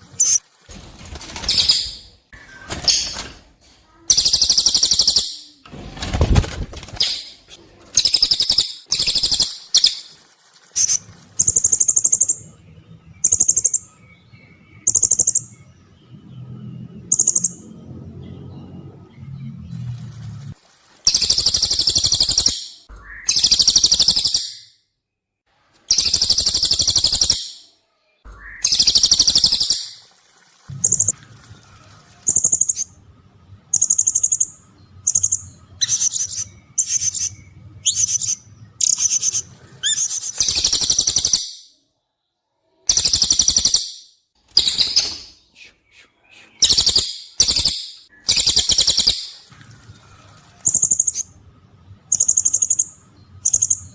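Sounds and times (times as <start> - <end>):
high buzzy bird calls: 4.0 - 6.3, 6.9 - 12.6, 17.1 - 17.7, 21.0 - 24.7, 25.9 - 30.1, 42.9 - 51.4, 52.0 - 53.9.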